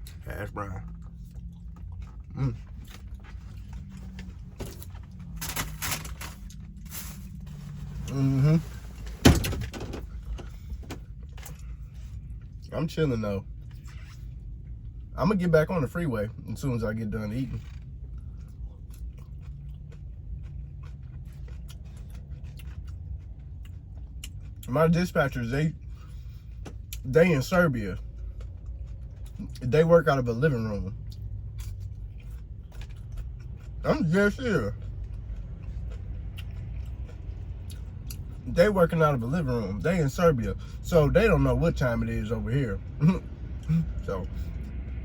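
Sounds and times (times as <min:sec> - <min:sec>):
person chewing crispy food: 0:00.0 - 0:08.9, 0:17.4 - 0:38.5
steady low hum: 0:00.0 - 0:45.0
scraping rustling noises: 0:02.7 - 0:09.2
low grunt-like sound: 0:43.0 - 0:44.1.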